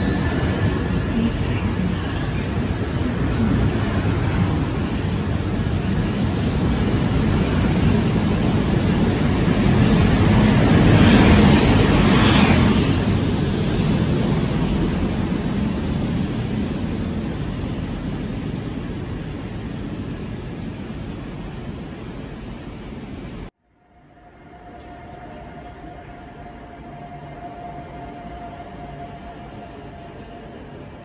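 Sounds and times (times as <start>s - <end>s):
train rolling past on rails: 0.0s - 31.0s.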